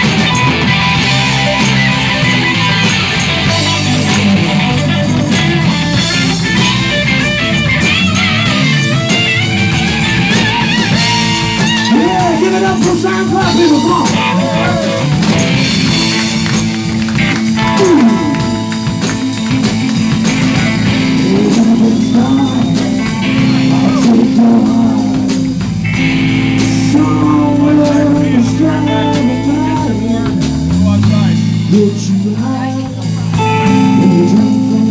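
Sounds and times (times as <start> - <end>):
bass: 0.0 - 34.9
drums: 0.0 - 34.9
electric guitar lead: 0.0 - 34.9
person singing: 11.0 - 16.2, 17.5 - 19.6, 20.8 - 25.7, 26.6 - 30.9, 31.7 - 34.9.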